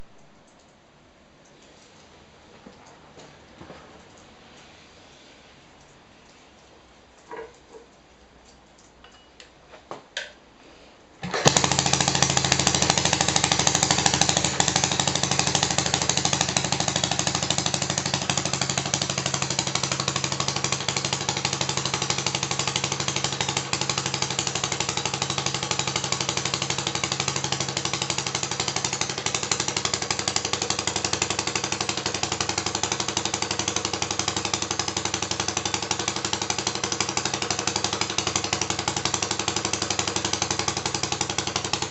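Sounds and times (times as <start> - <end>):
small petrol engine running: 11.2 - 41.9.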